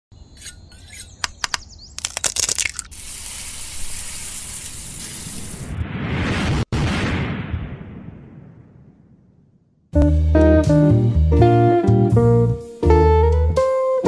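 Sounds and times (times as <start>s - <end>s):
sharp clicks: 0.4s - 2.9s
steady hiss: 2.9s - 5.7s.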